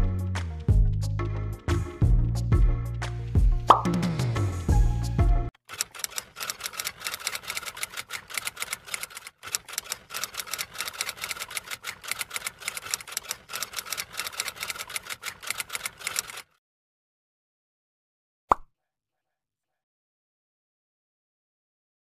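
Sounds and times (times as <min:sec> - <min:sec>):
keyboard typing clicks: 0:05.7 - 0:16.4.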